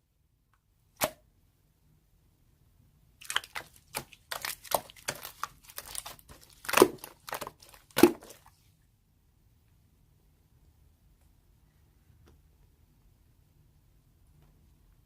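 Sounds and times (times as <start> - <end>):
slime crackling and popping: 3.2 - 8.5.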